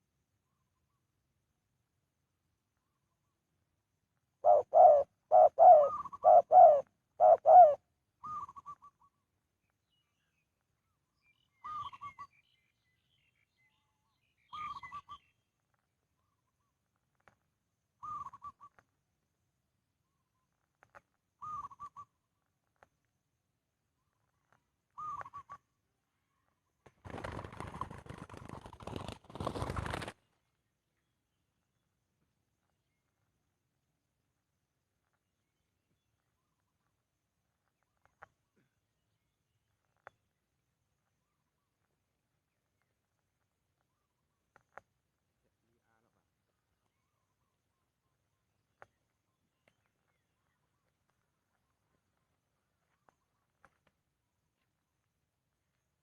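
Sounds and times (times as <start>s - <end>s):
dove cooing: 4.4s - 8.8s.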